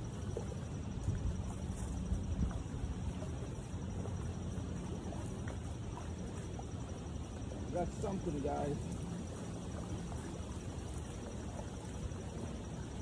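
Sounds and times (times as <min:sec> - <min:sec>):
wind on microphone: 0:00.0 - 0:03.3.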